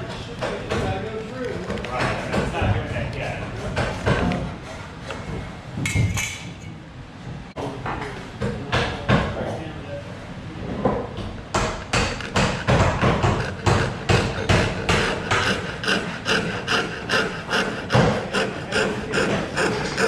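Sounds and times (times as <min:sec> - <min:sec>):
hand tool scraping wood: 0:11.6 - 0:20.0.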